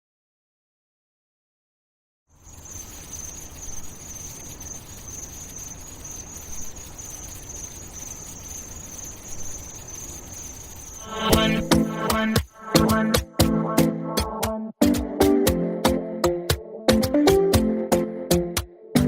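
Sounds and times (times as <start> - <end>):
low hiss: 2.3 - 13.1
high-pitched chirring: 2.4 - 13.1
song with plucked chords: 12.8 - 19.0.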